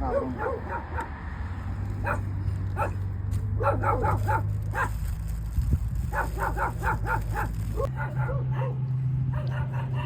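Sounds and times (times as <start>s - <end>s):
dog barking: 0.0s - 1.1s, 2.0s - 3.0s, 3.6s - 4.9s, 6.1s - 10.0s.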